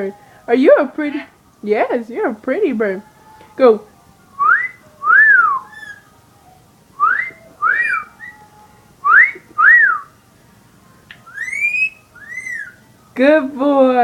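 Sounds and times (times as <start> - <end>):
parakeet wolf whistle: 4.4 - 6.1, 7.0 - 10.1, 11.2 - 12.8.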